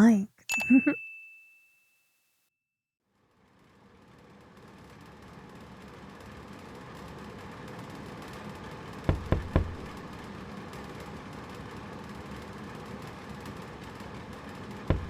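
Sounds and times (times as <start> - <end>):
knocks on a door: 9.1 - 9.8.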